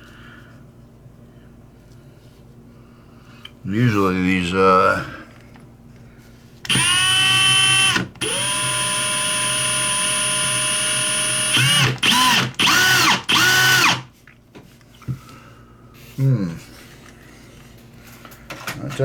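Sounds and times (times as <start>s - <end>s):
electric drill whining into brass: 6.7s - 14.1s.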